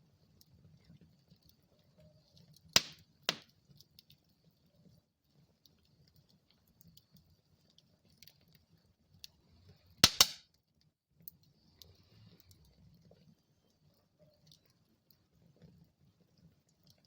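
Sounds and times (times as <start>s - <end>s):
wood fire burning: 0.0s - 17.0s.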